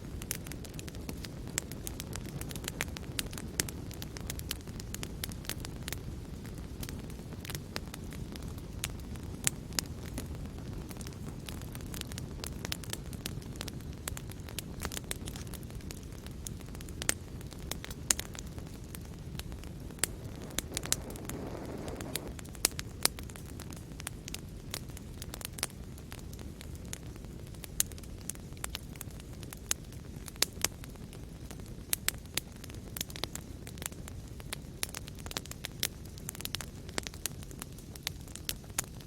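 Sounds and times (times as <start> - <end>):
low rush of flames: 0.0 - 39.0
fire pops and snaps: 0.1 - 39.0.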